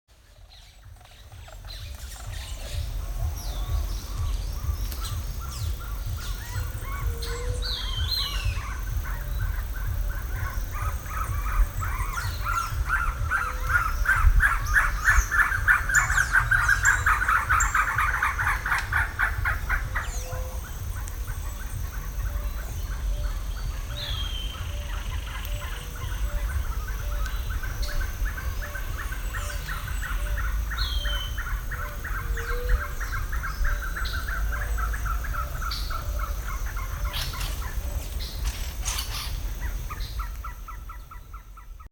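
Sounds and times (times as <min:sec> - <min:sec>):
low rumble: 0:00.2 - 0:41.9
bird rattling call: 0:27.6 - 0:40.1.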